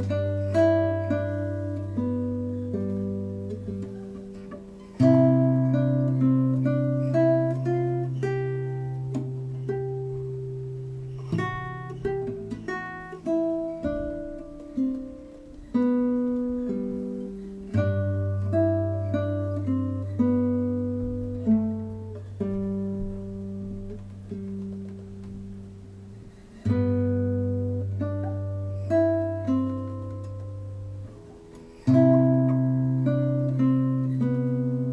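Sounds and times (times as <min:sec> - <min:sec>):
plucked guitar melody notes: 0:00.0 - 0:34.9.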